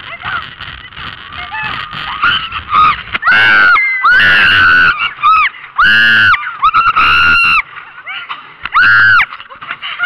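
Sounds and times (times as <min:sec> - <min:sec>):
muffled people screaming: 0:01.6 - 0:07.6, 0:08.7 - 0:09.3.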